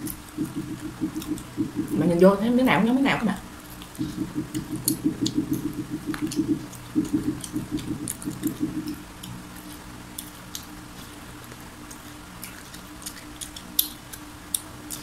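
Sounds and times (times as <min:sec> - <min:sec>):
low rhythmic chomping: 0:00.0 - 0:02.9, 0:03.8 - 0:09.4.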